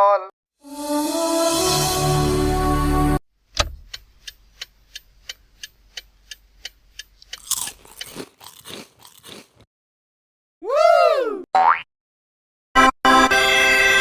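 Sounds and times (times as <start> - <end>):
crunchy biting and chewing: 7.2 - 9.7.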